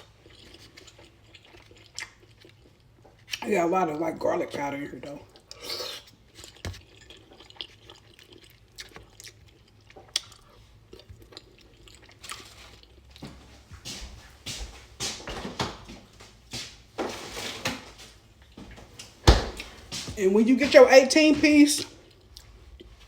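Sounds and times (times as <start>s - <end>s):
person chewing crunchy food: 0.0s - 3.4s, 5.2s - 14.4s, 21.8s - 23.0s.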